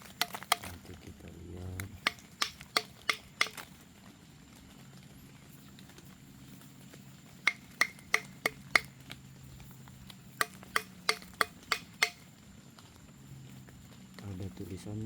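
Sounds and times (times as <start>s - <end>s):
sharp metallic knocks on iron: 2.0s - 3.6s, 7.4s - 8.9s, 10.4s - 12.2s.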